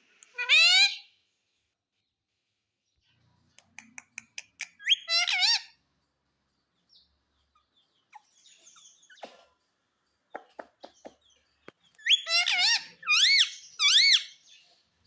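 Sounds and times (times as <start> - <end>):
parrot clicking chirps: 3.6 - 5.2.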